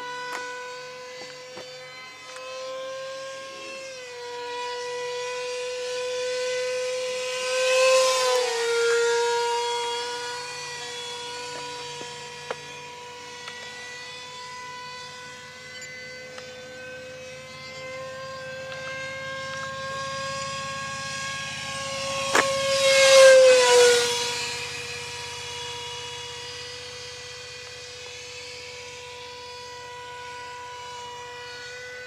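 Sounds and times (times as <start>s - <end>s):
model jet fan whining: 0.0s - 32.0s.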